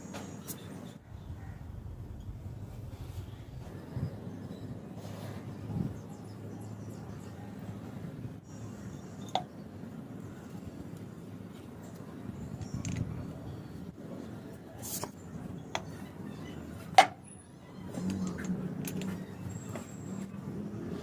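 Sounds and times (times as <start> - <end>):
low background rumble: 1.0 - 16.4.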